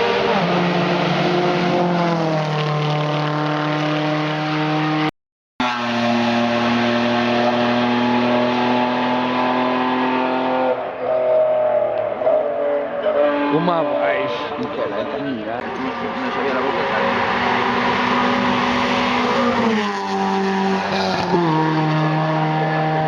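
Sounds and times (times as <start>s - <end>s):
racing car engine running hard: 0.0s - 13.6s.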